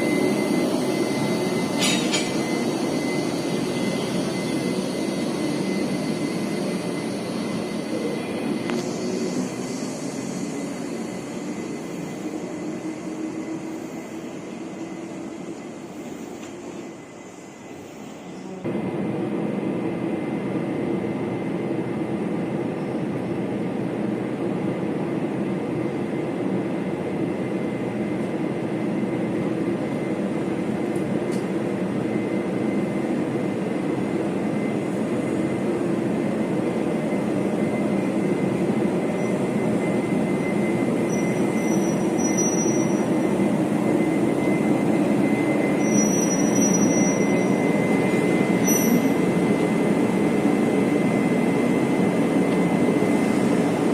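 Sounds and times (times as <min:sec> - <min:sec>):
thin steady whine: 0:00.0 - 0:21.6
train rumbling on rails: 0:00.0 - 0:53.9
short high squeaks: 0:41.2 - 0:43.0, 0:48.6 - 0:49.1.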